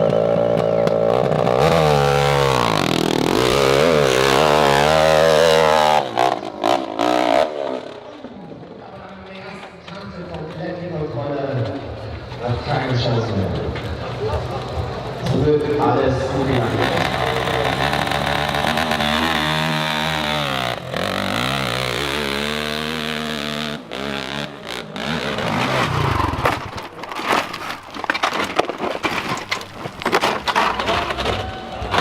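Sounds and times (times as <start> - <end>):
dirt bike engine revving: 0.0 - 8.3, 14.9 - 32.0.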